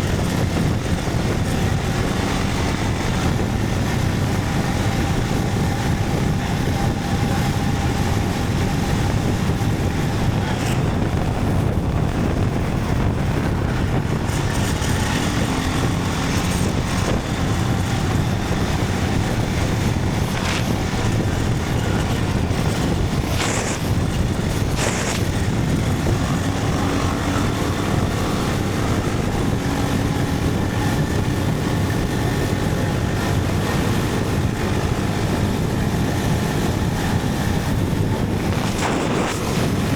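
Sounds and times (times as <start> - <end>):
motorcycle engine running: 0.0 - 39.9
wind noise over microphone: 0.0 - 39.9.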